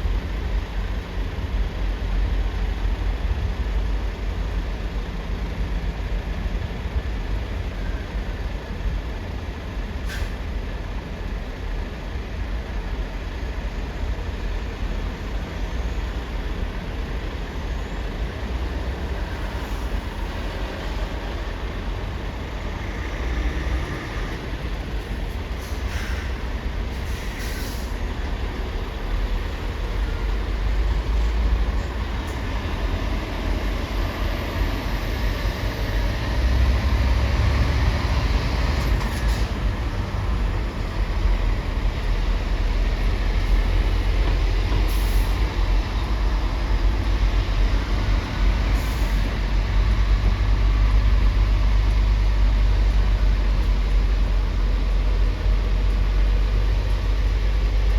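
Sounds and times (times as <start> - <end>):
heavy engines rumbling: 0.0 - 57.9
short hisses: 25.6 - 26.4, 27.0 - 28.0.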